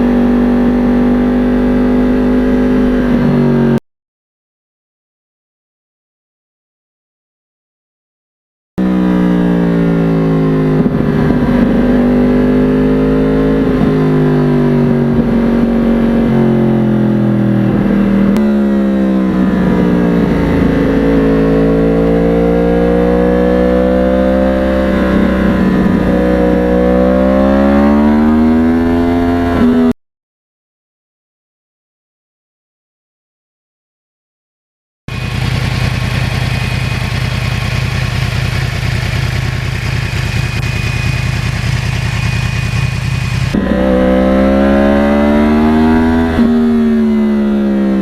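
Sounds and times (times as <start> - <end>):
motorcycle engine revving: 0.0 - 3.8, 8.8 - 30.0, 35.1 - 48.0.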